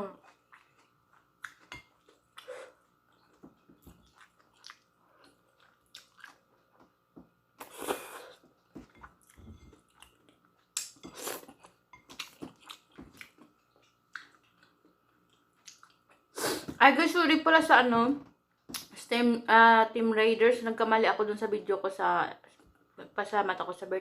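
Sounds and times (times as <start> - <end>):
chewing noodles: 0.2 - 6.9, 7.6 - 16.3.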